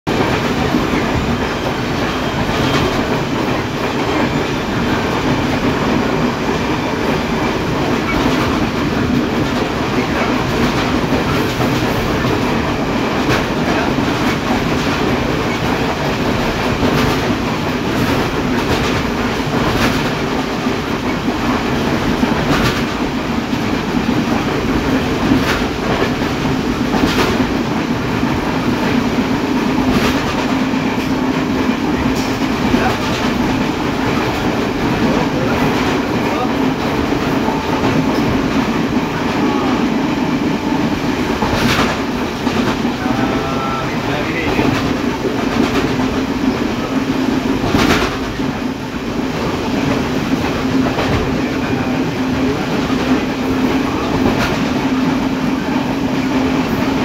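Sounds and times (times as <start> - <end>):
train carriage rumble and rattle: 0.0 - 57.0
wheel clicks over rail joints: 13.2 - 29.0.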